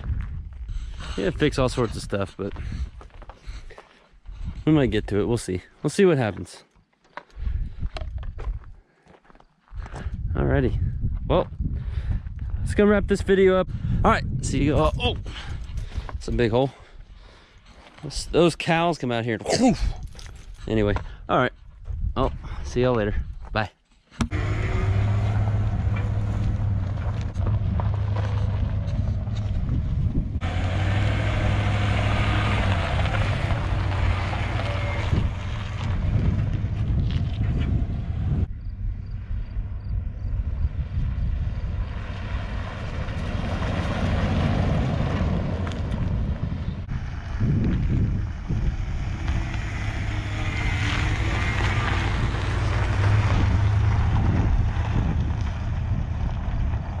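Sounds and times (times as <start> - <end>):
wind noise on microphone: 0.0 - 5.4, 7.4 - 8.8, 9.7 - 17.5, 19.7 - 23.6, 24.2 - 57.0
truck engine droning: 24.2 - 57.0.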